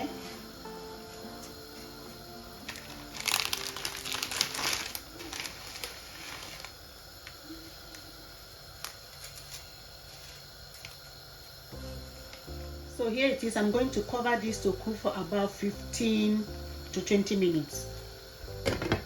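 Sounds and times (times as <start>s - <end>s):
dry spaghetti crackling: 2.6s - 12.5s.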